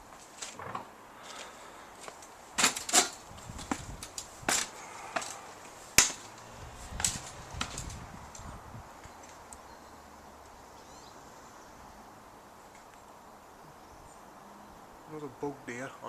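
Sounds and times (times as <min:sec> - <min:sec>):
faint background hiss: 0:00.0 - 0:16.0.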